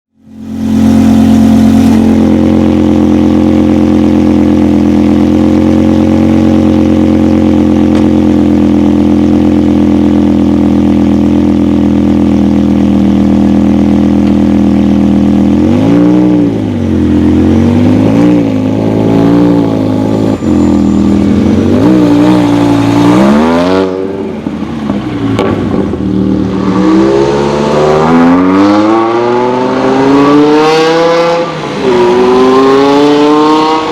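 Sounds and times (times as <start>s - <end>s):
car engine idling: 0.2s - 15.8s, 16.5s - 23.4s
engine throttle blips: 17.5s - 23.6s.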